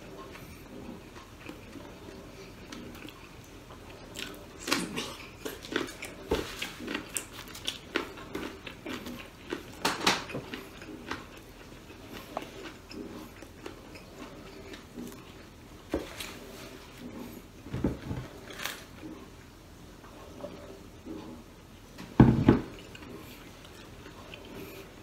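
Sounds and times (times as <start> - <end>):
person chewing crunchy food: 0.0 - 17.6, 22.6 - 25.0.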